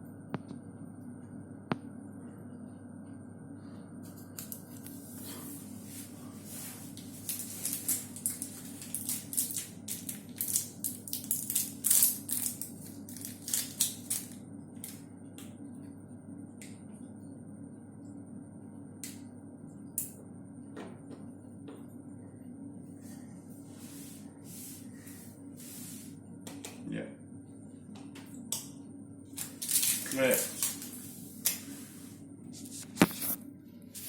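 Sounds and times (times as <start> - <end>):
steady low hum: 0.0 - 34.0
plastic packaging crinkling: 7.0 - 15.0, 29.4 - 31.6.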